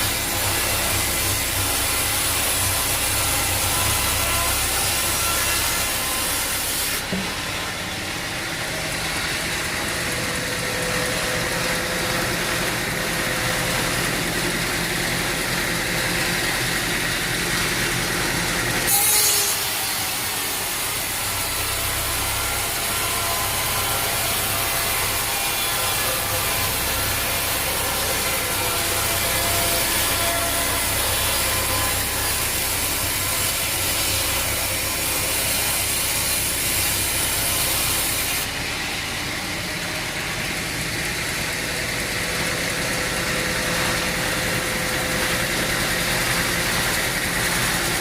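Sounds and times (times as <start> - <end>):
saw cutting wood: 0.0 - 48.0
sawmill engine drone: 0.0 - 48.0.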